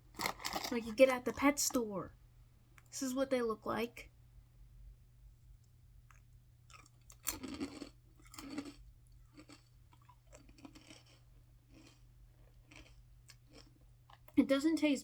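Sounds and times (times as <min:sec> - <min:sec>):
person chewing crunchy crisps: 0:00.0 - 0:01.8, 0:06.0 - 0:14.4.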